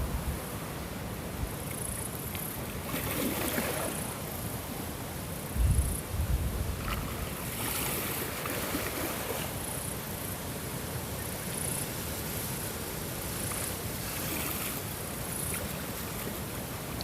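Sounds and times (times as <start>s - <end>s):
water lapping: 2.6s - 4.2s, 6.8s - 9.8s, 13.4s - 17.0s.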